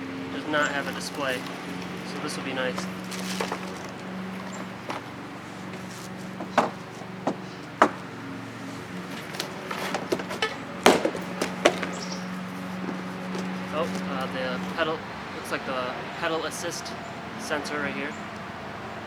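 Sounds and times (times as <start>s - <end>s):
parts being handled: 0.2s - 14.8s.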